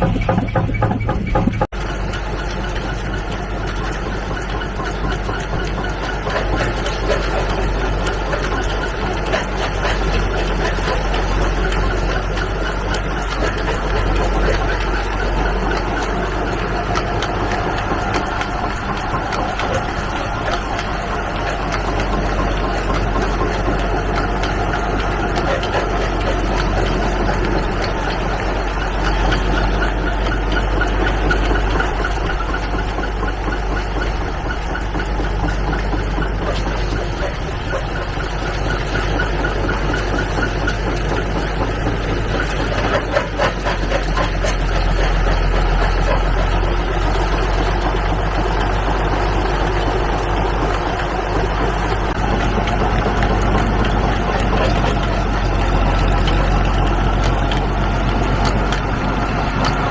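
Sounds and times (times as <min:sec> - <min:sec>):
knocks: 0:00.0 - 0:01.7
tractor engine running: 0:00.0 - 0:59.9.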